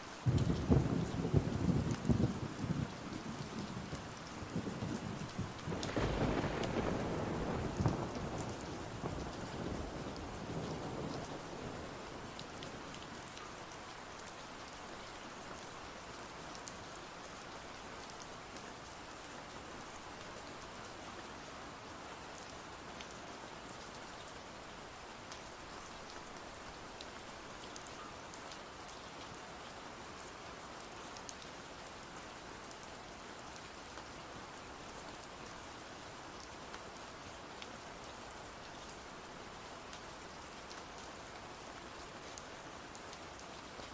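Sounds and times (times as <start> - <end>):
steady rain falling: 0.0 - 43.9
low rumble of thunder: 0.3 - 12.9.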